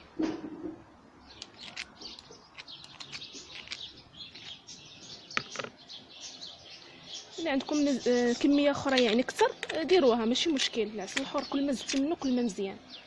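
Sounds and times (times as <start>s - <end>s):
songbirds twittering: 0.0s - 13.0s
sharp clicks: 1.4s - 4.6s.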